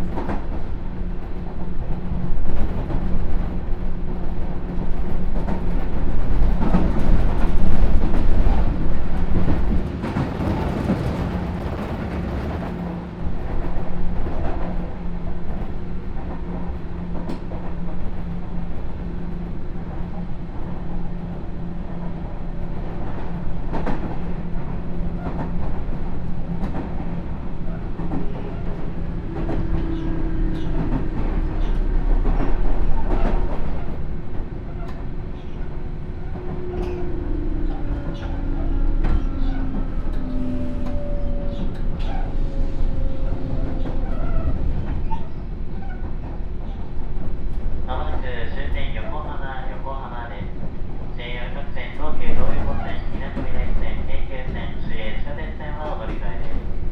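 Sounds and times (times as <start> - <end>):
train wheels running on rail: 0.0 - 48.5
rail joint clicks: 0.0 - 49.0
train motor hum: 24.5 - 46.4.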